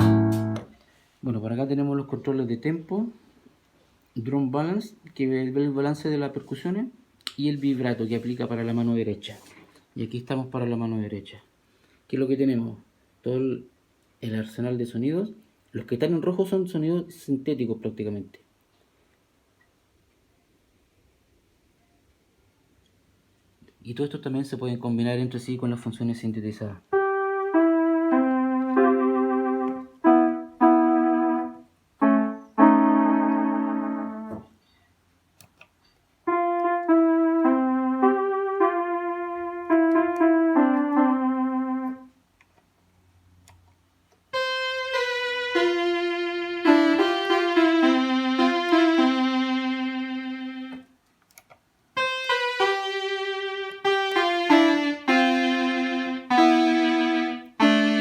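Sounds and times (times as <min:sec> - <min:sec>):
home organ melodic phrases: 0:00.0 - 0:00.8, 0:26.9 - 0:34.6, 0:36.2 - 0:42.2, 0:44.3 - 0:50.9, 0:52.0 - 0:58.0.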